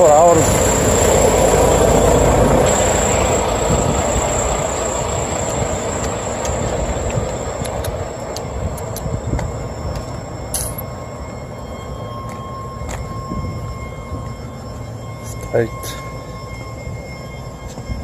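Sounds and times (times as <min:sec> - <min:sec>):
diesel truck engine rumbling: 0:00.0 - 0:09.0.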